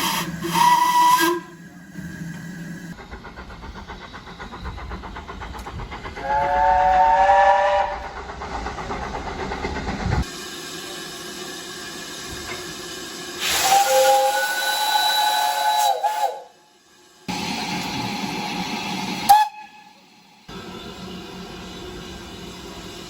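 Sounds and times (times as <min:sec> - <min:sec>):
steam whistle single note: 0:00.0 - 0:01.5, 0:06.2 - 0:08.0, 0:13.4 - 0:16.6, 0:19.2 - 0:20.0.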